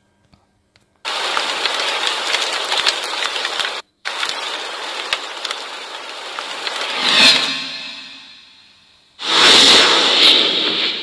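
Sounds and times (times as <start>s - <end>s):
heavy rain hiss: 1.1s - 8.6s.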